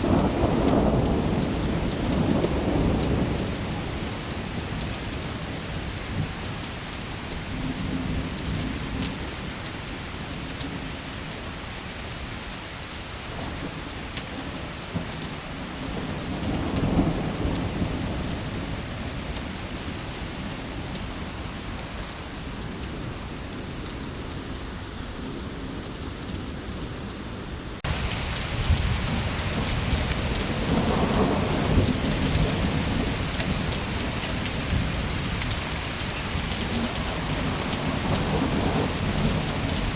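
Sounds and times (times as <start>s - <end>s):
low rolls of thunder: 0.0s - 5.1s, 14.9s - 19.7s, 27.8s - 39.9s
heavy rain: 0.0s - 39.9s.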